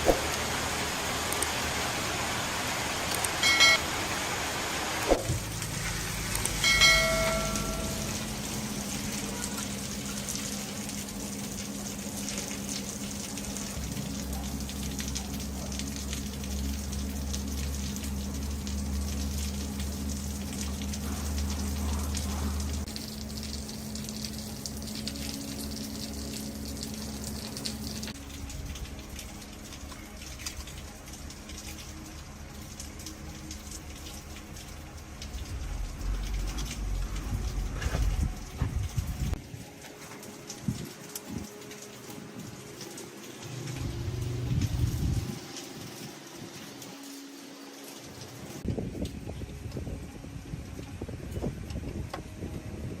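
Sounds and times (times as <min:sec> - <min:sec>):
constant hiss: 0:00.0 - 0:52.6
low machine hum: 0:00.0 - 0:53.0
deeper rumble: 0:35.3 - 0:39.4.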